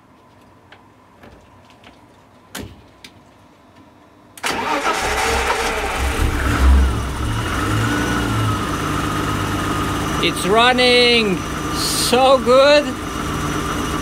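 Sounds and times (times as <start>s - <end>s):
car engine starting and idling: 4.4s - 14.0s.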